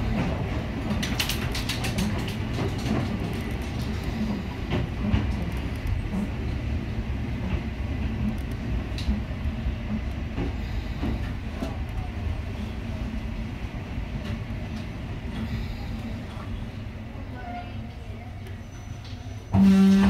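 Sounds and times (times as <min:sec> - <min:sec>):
wheels rumbling on rails: 0:00.0 - 0:20.0.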